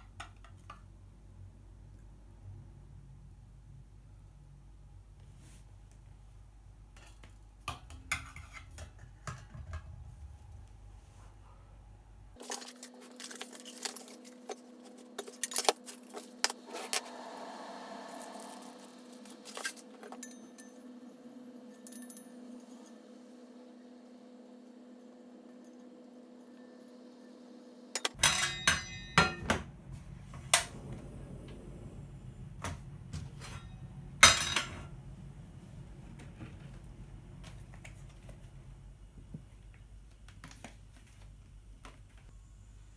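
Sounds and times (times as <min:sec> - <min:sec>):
faint steady hum: 0:00.0 - 0:42.9
metal cookware clinking: 0:28.0 - 0:29.6, 0:33.2 - 0:35.0
low steady noise: 0:28.0 - 0:42.9.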